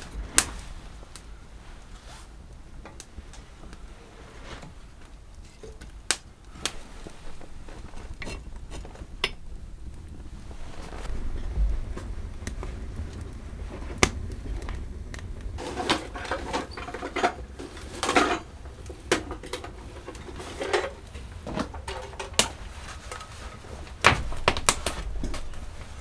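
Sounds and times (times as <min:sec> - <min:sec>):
low wind rumble: 0:00.0 - 0:26.0
rustling scrapes: 0:00.0 - 0:26.0.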